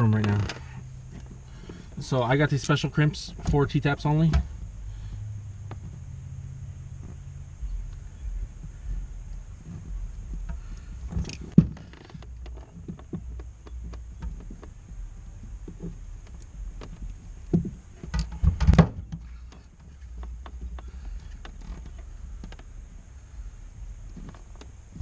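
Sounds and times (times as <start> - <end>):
low rumble: 0.0 - 25.0
clicks and rustles of tools: 9.5 - 14.8, 15.7 - 22.7.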